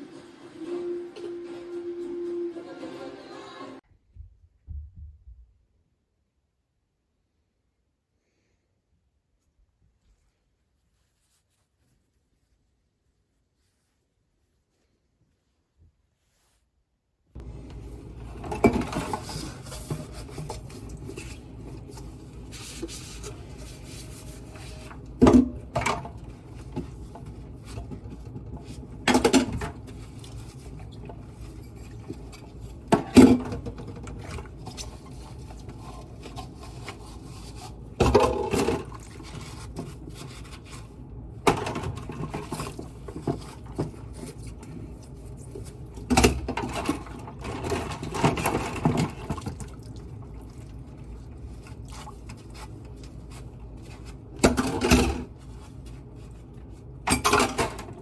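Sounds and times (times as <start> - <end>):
dishes and utensils clattering: 18.2 - 21.4, 57.1 - 58.0.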